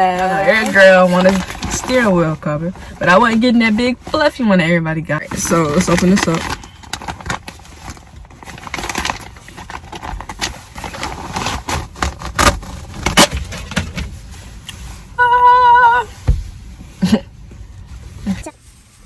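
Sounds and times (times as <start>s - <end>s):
packaging crinkling and rustling: 0.0s - 4.3s, 5.2s - 15.0s.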